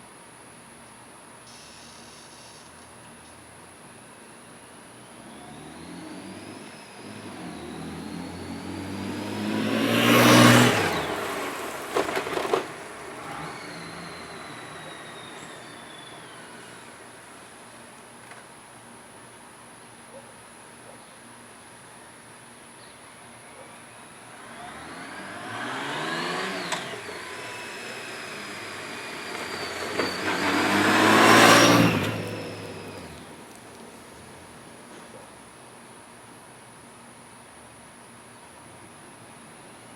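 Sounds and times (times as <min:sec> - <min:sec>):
motorcycle passing by: 0:05.1 - 0:17.8, 0:24.1 - 0:35.0
wind and tyre noise: 0:05.2 - 0:17.6, 0:24.2 - 0:34.9.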